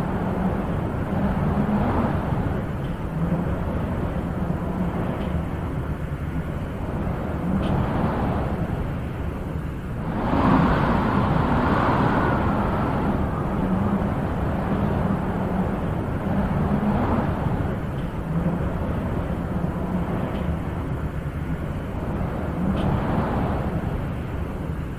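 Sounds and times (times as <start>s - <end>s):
wind gusting: 0.0s - 24.9s.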